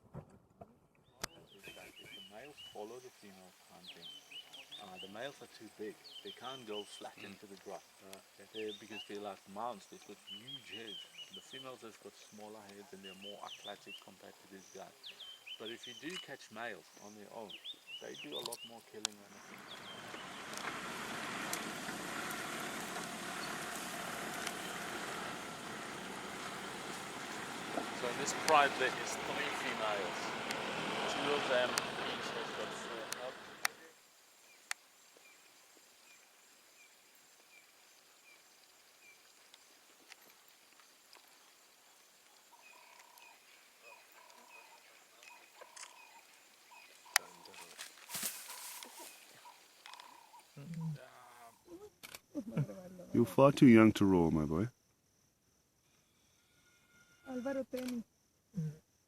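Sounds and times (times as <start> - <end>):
faint clicks: 12.4 - 12.8, 18.4 - 20.8, 44.2 - 50.9, 57.7 - 58.0
lion cubs calling: 17.0 - 33.8, 42.5 - 51.8
motor vehicle running: 19.2 - 33.8
sharp click: 57.8 - 58.0.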